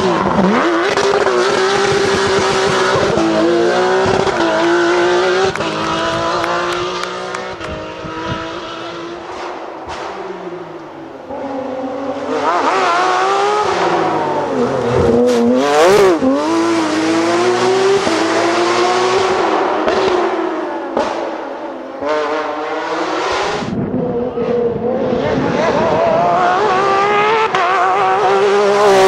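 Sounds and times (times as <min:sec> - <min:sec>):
rally car engine revving: 0:00.0 - 0:29.0.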